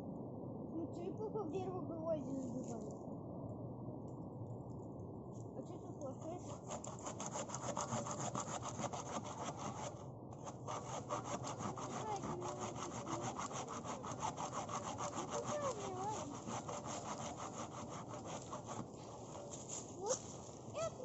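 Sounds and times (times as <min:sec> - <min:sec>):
hand saw cutting wood: 0:06.4 - 0:20.4.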